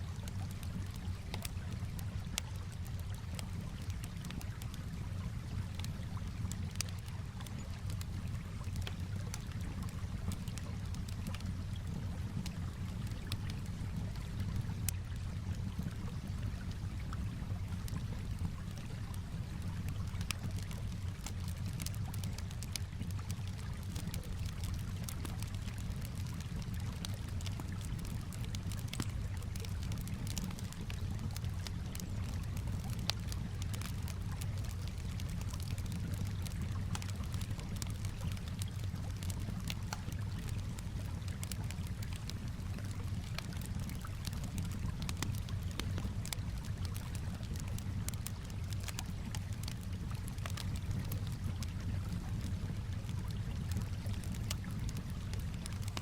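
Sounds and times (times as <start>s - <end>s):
calm water washing: 0.0s - 56.0s
campfire crackling and popping: 0.0s - 56.0s.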